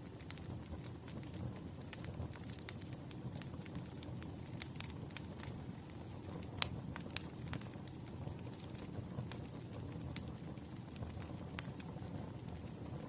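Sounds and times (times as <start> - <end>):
low rumble of burning: 0.0 - 13.0
wood fire crackling and popping: 0.0 - 13.0.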